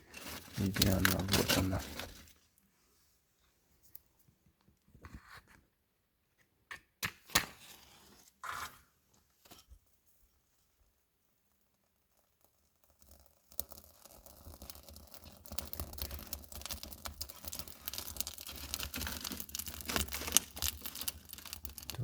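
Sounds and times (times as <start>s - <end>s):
birch bark crackling and tearing: 0.1s - 2.2s, 15.6s - 22.0s.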